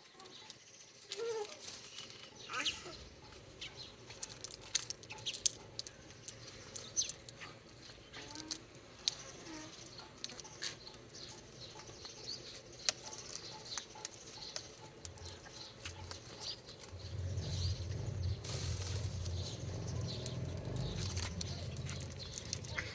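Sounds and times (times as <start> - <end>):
clicks and scuffling: 12.6 - 22.9
low rumble: 16.8 - 22.9.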